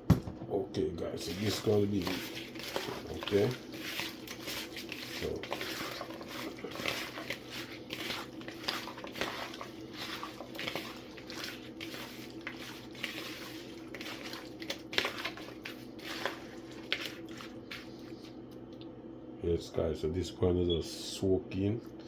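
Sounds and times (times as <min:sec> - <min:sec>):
faint steady hum: 0:00.0 - 0:22.0
soft squishes of meat: 0:01.0 - 0:19.0.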